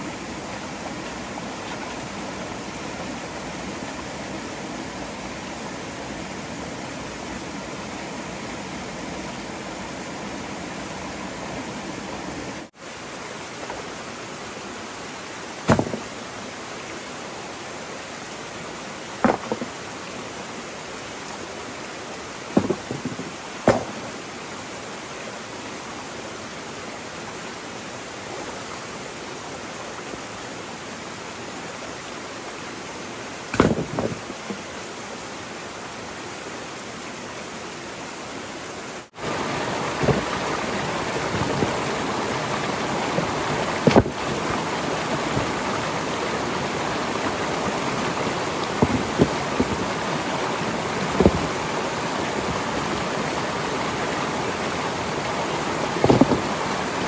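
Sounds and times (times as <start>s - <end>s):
flowing water rushing: 0.0s - 57.0s
scattered knocks: 15.7s - 16.1s, 22.6s - 24.0s.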